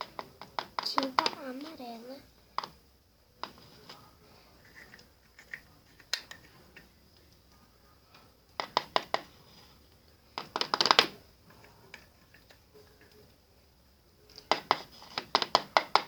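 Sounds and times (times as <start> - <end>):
pencil clicking against plastic pot: 0.0 - 1.7, 4.7 - 6.9, 8.6 - 9.4, 10.4 - 13.2, 14.3 - 16.0.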